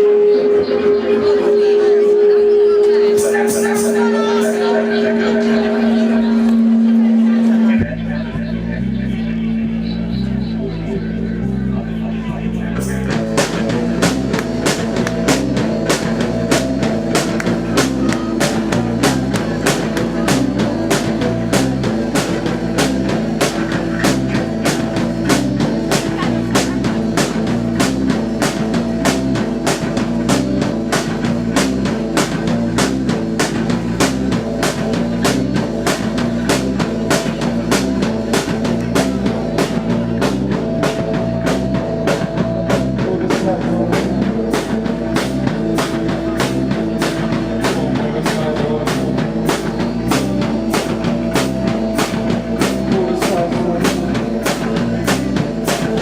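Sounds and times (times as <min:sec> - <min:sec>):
sustained droning note: 0:00.0 - 0:12.1
driving drum beat: 0:00.0 - 0:56.0
live rock band playing: 0:00.0 - 0:56.0.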